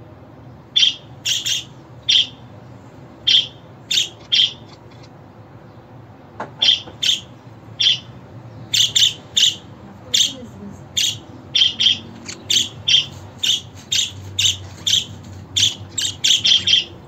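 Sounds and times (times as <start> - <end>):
budgerigar chirps: 0.8 - 2.4, 3.2 - 5.1, 6.6 - 10.4, 11.0 - 17.0.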